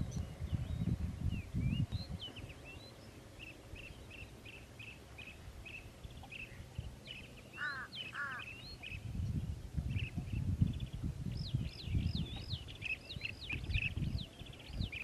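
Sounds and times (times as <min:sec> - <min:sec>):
birds chirping: 0:00.0 - 0:15.0
harsh bird calls: 0:02.0 - 0:09.0.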